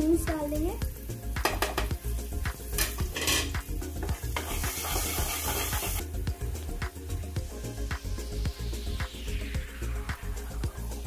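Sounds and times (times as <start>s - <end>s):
vegetables sizzling in hot oil: 0.0s - 11.0s
spatula scraping and tapping pan: 1.4s - 6.0s.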